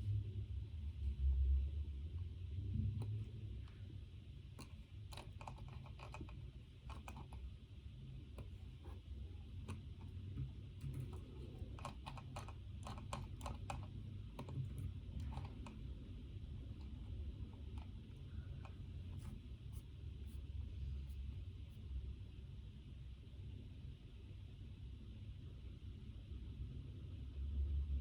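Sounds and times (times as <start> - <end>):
steady low hum: 0.0 - 28.0
typing on keyboard: 4.6 - 7.5, 10.8 - 16.0.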